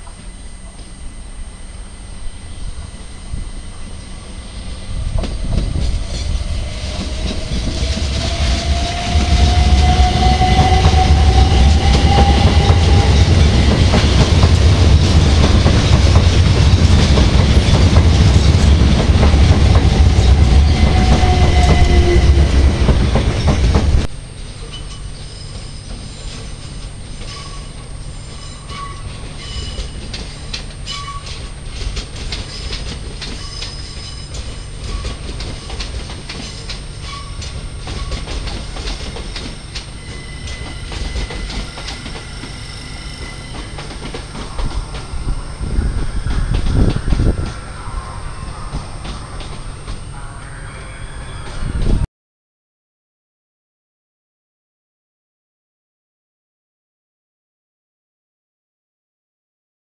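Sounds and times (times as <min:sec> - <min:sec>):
traction motors whining: 0:00.0 - 0:52.0
rumble of wheels on rail: 0:00.0 - 0:52.1
wheels clicking over rail joints: 0:28.8 - 0:42.6
faint wheel squeals: 0:32.4 - 0:35.9, 0:39.1 - 0:51.8.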